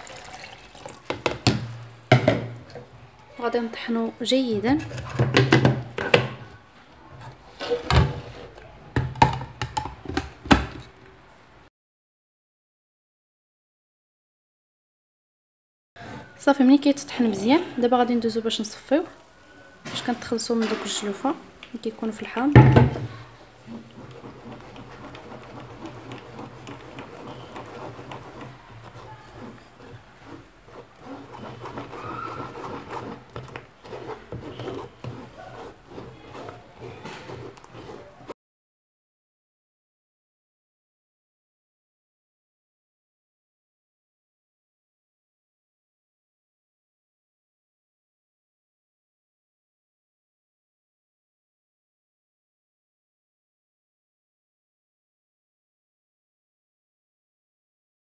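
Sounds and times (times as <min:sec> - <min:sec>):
plastic blender jug knocking: 0:01.0 - 0:02.7, 0:05.0 - 0:06.4, 0:09.0 - 0:10.8, 0:22.5 - 0:30.0
spoon scraping a sieve: 0:21.9 - 0:38.3.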